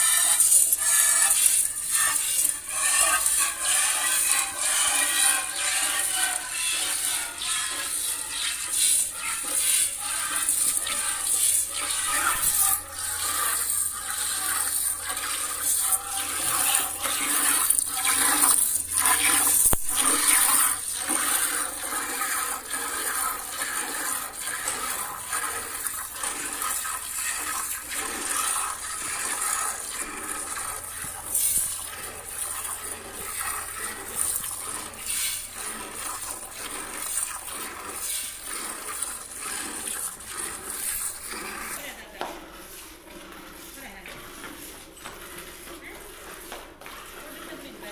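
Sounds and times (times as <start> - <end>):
milk squirting into a pail: 0.0 - 47.9.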